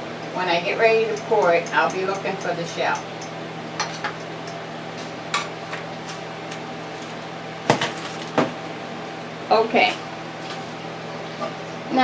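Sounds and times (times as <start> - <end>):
microwave oven humming: 0.0 - 12.0
utensil clinking against bowl: 1.1 - 4.6.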